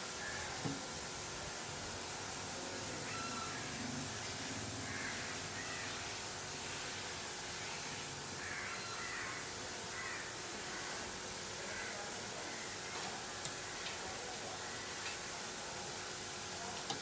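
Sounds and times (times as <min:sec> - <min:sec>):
steady hiss: 0:00.0 - 0:17.0
faint bird calls: 0:03.0 - 0:03.7, 0:08.4 - 0:13.0.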